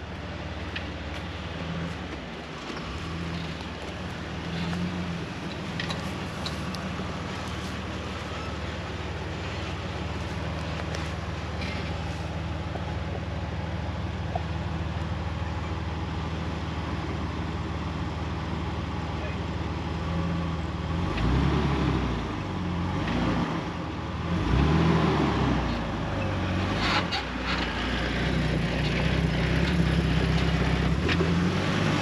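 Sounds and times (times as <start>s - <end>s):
car engine running: 0.0s - 20.8s.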